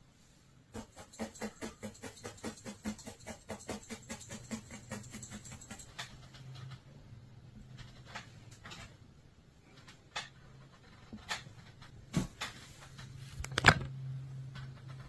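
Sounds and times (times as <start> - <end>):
felting needle poking wool: 0.7 - 6.2.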